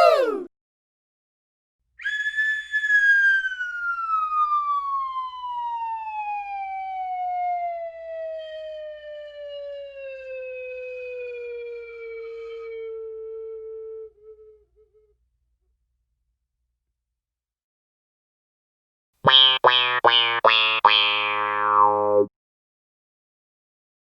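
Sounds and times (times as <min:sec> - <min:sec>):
descending whistle-like tone: 0:02.0 - 0:04.4.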